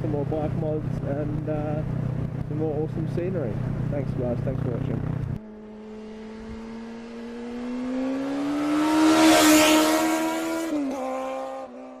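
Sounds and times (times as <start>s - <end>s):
traffic noise: 0.0s - 11.9s
motorcycle engine accelerating: 0.0s - 12.0s.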